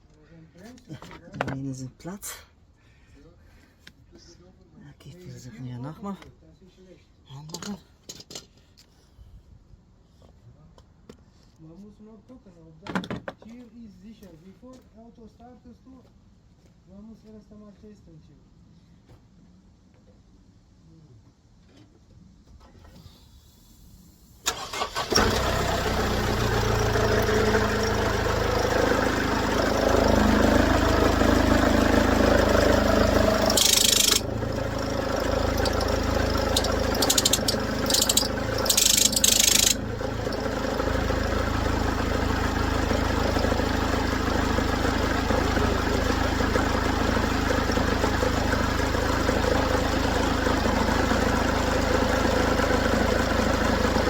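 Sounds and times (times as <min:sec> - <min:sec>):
car engine cranking and idling: 0:24.4 - 0:54.0.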